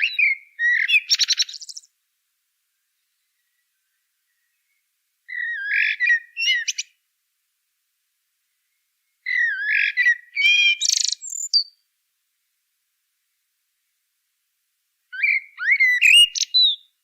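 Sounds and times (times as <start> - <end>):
songbird whistles and trills: 0.0 - 1.9, 3.0 - 7.0, 8.6 - 11.8, 15.1 - 17.0.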